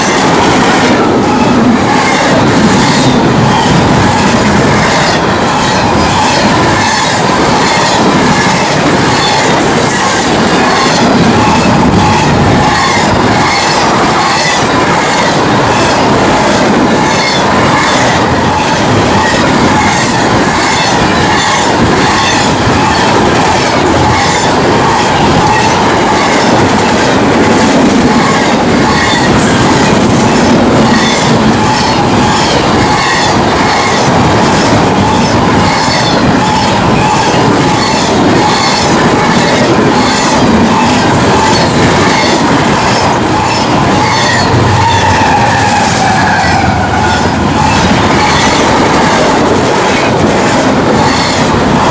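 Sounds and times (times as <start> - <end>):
high-pitched wheel squeal: 30.8 - 48.7.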